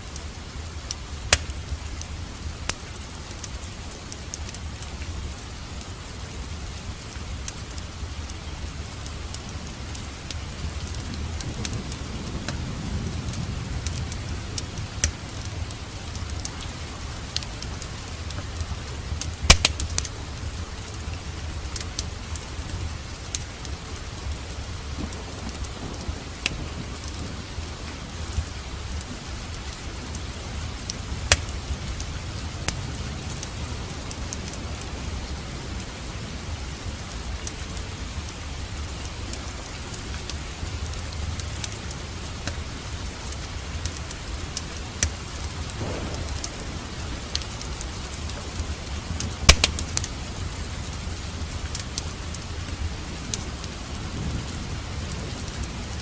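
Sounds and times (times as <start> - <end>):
steady rain: 0.0 - 56.0
wood fire crackling: 0.0 - 56.0
thunder rolling: 45.7 - 49.9.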